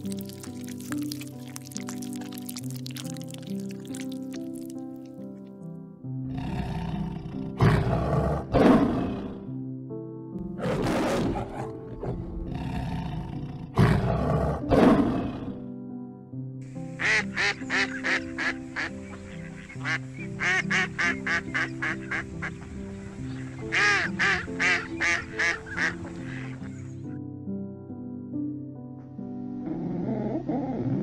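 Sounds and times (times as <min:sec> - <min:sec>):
background music: 0:00.0 - 0:31.0
waterfowl quacking and honking: 0:17.0 - 0:22.5, 0:23.7 - 0:26.6.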